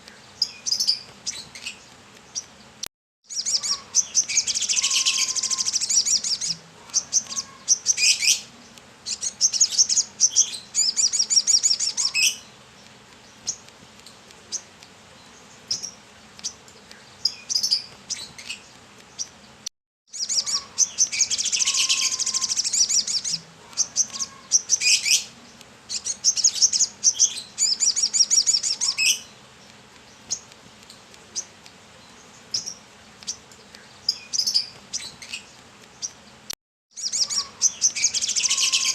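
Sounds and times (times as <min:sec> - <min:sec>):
bird twittering song: 0:00.0 - 0:38.9.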